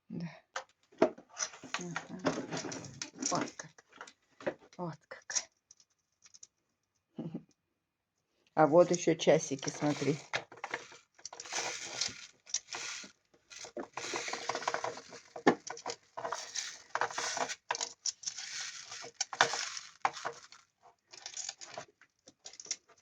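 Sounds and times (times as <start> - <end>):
toy parts clicking and rattling: 1.4 - 4.1, 9.5 - 23.0.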